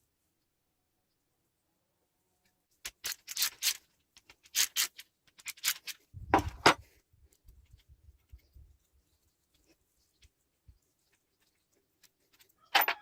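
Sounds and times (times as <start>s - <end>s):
tools clicking and scraping: 2.8s - 8.4s, 11.0s - 13.0s.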